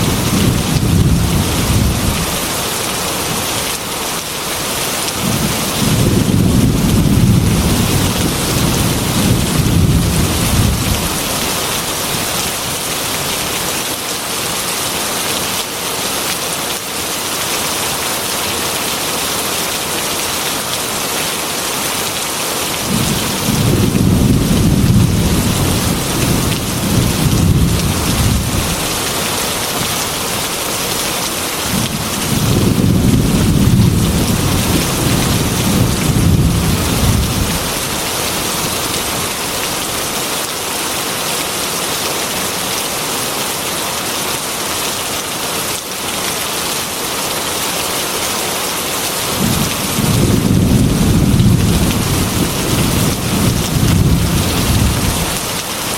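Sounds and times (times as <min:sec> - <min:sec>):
low thunder rumbling: 0:00.0 - 0:02.5, 0:05.2 - 0:11.5, 0:22.8 - 0:29.0, 0:31.7 - 0:39.2, 0:49.4 - 0:55.4
heavy rain: 0:00.0 - 0:55.9.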